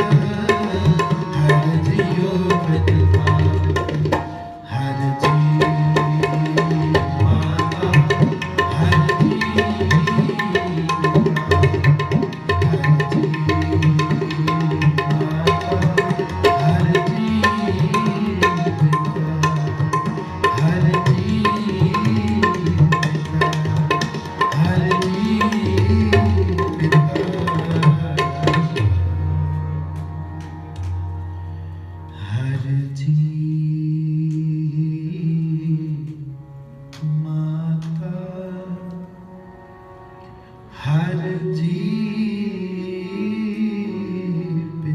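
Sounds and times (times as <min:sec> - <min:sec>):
fast tabla solo: 0:00.0 - 0:31.0
held harmonium drone: 0:00.0 - 0:32.5, 0:36.3 - 0:44.9.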